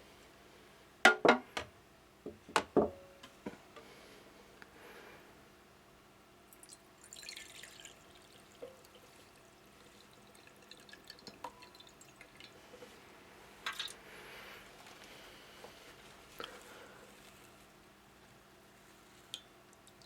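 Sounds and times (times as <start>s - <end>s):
water dripping and splashing: 6.5s - 12.6s, 16.1s - 17.9s, 19.1s - 20.0s.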